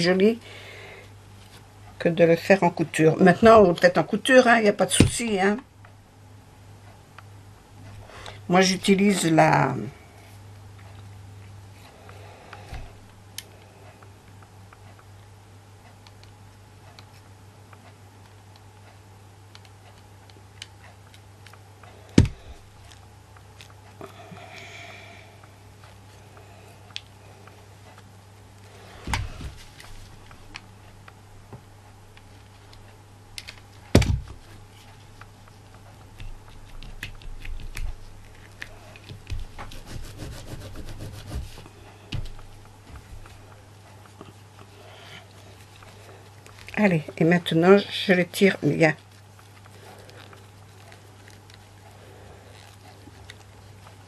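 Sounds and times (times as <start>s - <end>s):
steady low hum: 0.0s - 54.0s
rustling and tapping: 27.8s - 47.5s.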